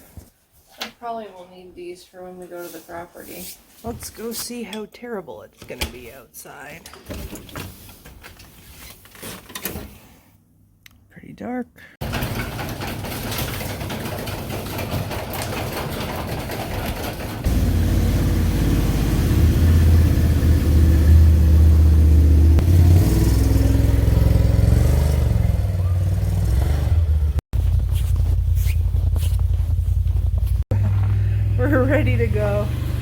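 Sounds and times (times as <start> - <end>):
vehicle engine humming: 17.1 - 33.0.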